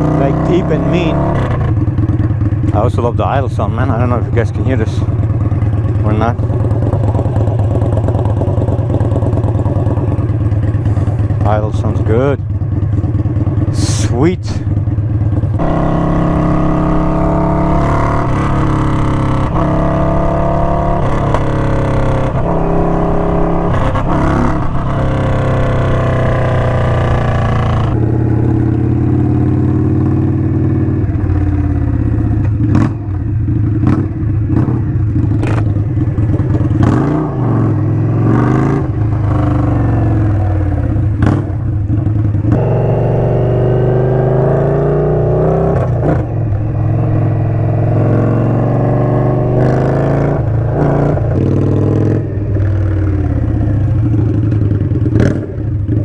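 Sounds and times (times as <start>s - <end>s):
motorcycle engine idling: 0.9s - 37.1s, 38.9s - 43.2s, 50.4s - 56.0s.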